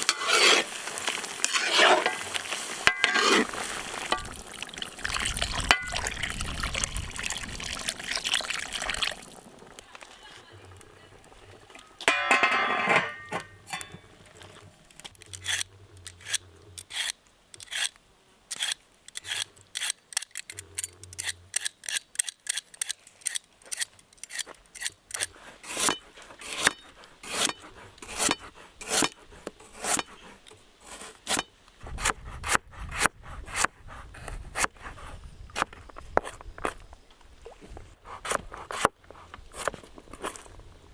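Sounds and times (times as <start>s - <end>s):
vegetable grating by hand: 0.0s - 2.3s, 2.9s - 4.2s, 25.2s - 36.4s.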